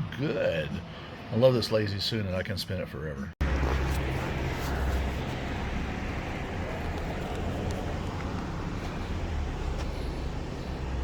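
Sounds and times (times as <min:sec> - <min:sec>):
vehicle road noise: 0:03.4 - 0:11.0.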